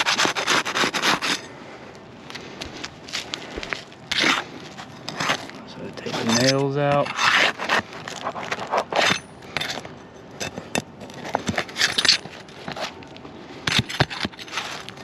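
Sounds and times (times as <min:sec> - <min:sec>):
metal tool scraping and clicking: 0:06.0 - 0:12.9.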